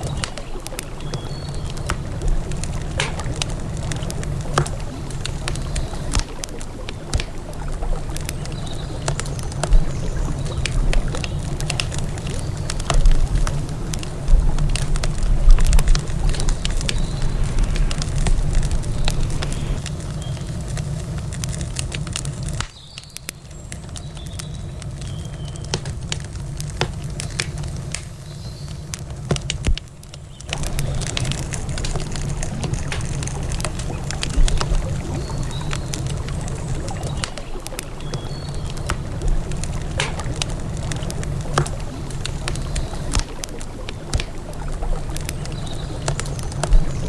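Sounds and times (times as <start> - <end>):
low rushing background: 0.0 - 20.1
campfire crackling and popping: 0.0 - 47.0.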